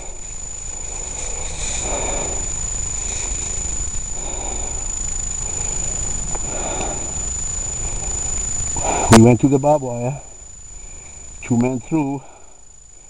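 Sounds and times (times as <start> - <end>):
person breathing heavily: 0.0 - 9.2, 12.2 - 12.7
thin high whine: 0.0 - 13.0.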